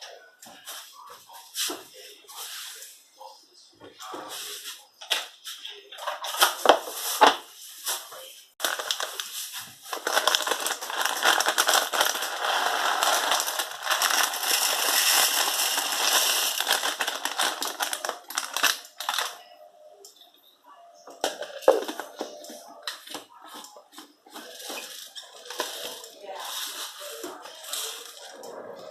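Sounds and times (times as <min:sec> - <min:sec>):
peppercorns cracking in a blender: 0:08.6 - 0:19.4.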